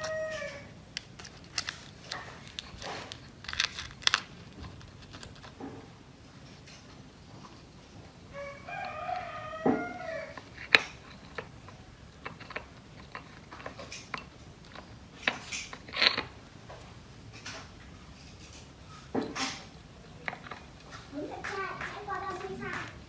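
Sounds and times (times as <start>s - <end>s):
rooster crowing: 0.0s - 0.8s, 8.3s - 10.5s
handling clicks and scraping: 0.0s - 23.0s.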